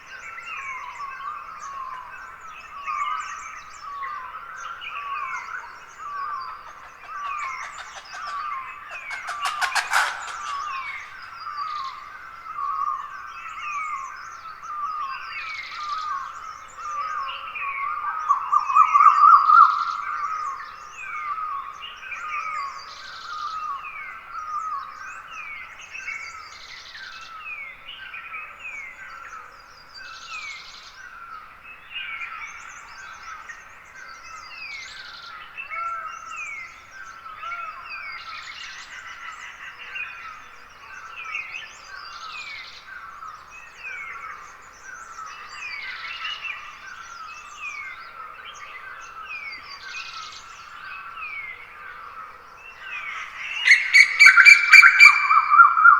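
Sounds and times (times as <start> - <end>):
birds chirping: 5.2 - 12.0, 52.8 - 55.9.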